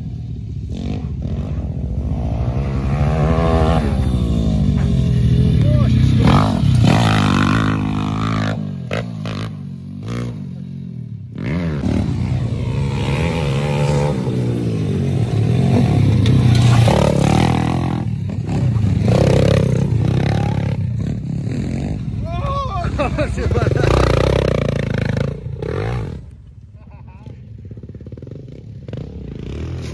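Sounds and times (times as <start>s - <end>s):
dirt bike engine revving: 0.6s - 26.4s, 27.6s - 29.9s
clatter and scraping: 15.8s - 17.2s.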